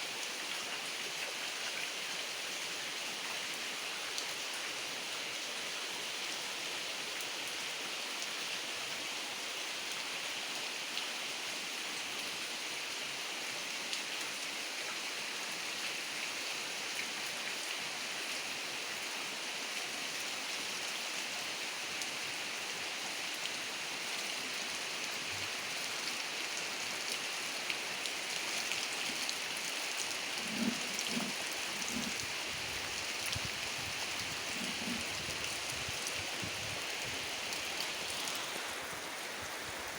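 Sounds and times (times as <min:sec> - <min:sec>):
heavy rain falling: 0:20.7 - 0:39.9.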